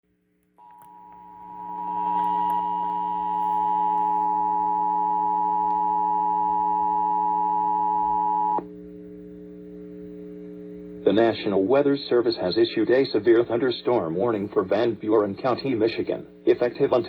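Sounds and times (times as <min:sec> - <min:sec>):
low steady hum: 0:00.1 - 0:17.0.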